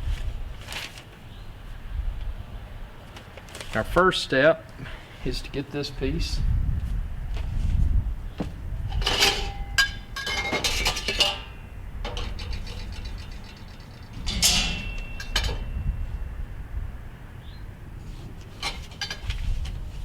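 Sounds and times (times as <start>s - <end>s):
metal grill parts clanking: 8.9s - 16.4s, 18.1s - 20.0s.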